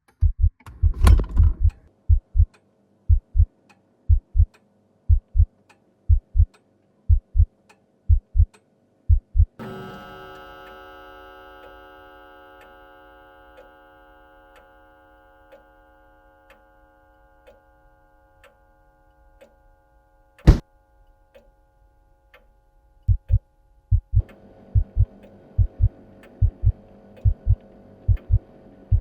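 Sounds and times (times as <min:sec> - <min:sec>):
faint clock ticking: 0:01.6 - 0:09.6, 0:22.3 - 0:29.0.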